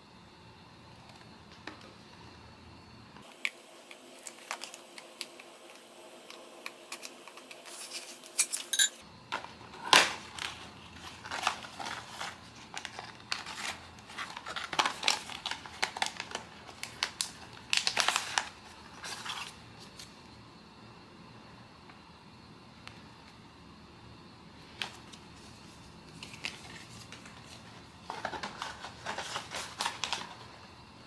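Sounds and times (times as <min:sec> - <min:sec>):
plastic wrap crinkling: 0:09.8 - 0:20.2, 0:24.8 - 0:30.6.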